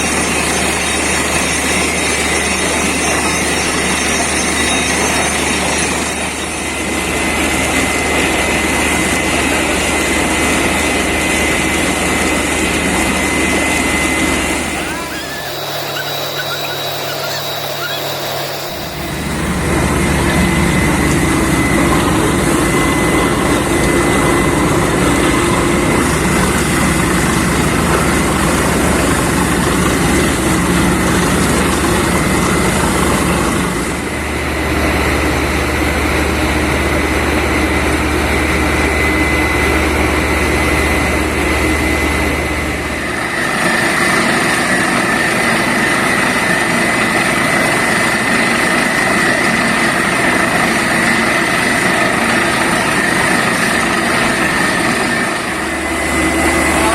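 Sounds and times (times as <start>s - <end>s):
thin high whistling tone: 0.0s - 6.8s, 14.4s - 19.8s
drilling rig and air compressor: 0.0s - 56.9s.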